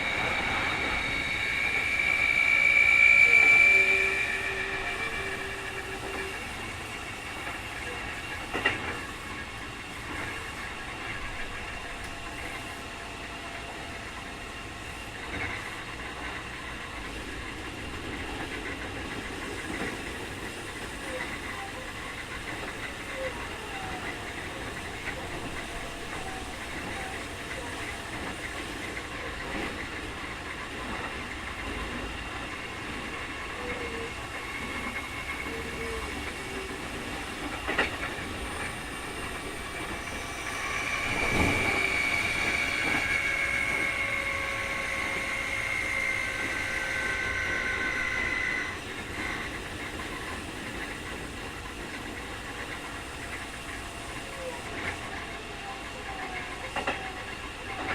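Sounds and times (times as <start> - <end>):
high motor whine: 0.0 - 6.7
rail clack: 0.0 - 57.9
train rolling noise: 0.0 - 57.9.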